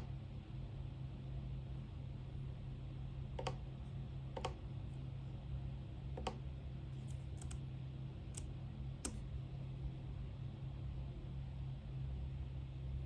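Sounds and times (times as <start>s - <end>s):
steady low hum: 0.0s - 13.0s
light clicks at a desk: 3.4s - 3.6s, 4.4s - 4.6s, 6.2s - 6.4s, 7.1s - 7.6s.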